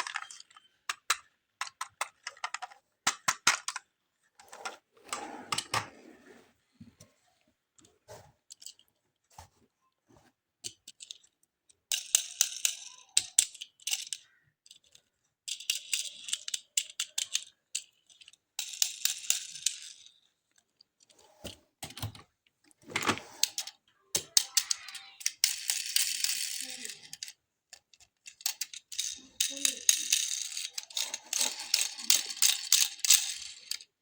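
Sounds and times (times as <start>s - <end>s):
toy cars rattling: 0.0s - 6.0s, 10.6s - 21.2s, 22.9s - 34.0s.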